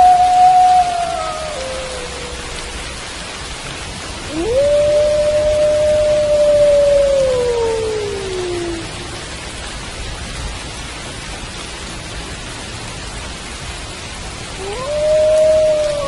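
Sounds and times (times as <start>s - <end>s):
wolf howling: 0.0s - 3.1s, 4.3s - 9.2s, 14.6s - 16.0s
rain hiss: 0.0s - 16.0s.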